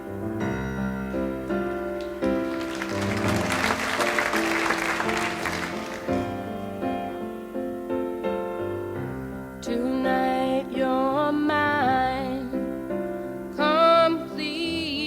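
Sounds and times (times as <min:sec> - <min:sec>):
piano playing chords: 0:00.0 - 0:15.0
audience applause: 0:01.6 - 0:07.0.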